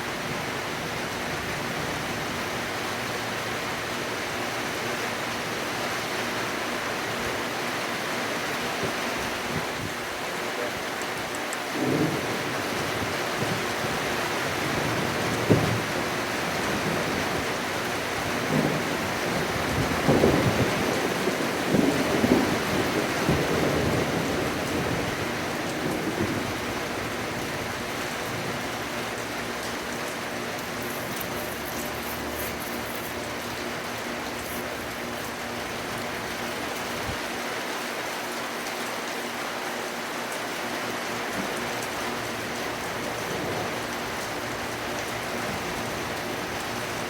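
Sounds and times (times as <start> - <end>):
heavy rain falling: 0.0 - 47.0
low rumbles of thunder: 11.7 - 32.3, 41.4 - 47.0.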